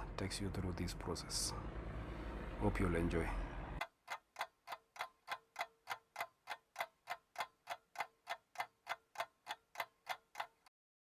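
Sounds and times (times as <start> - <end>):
clock-like ticking: 3.8 - 10.7.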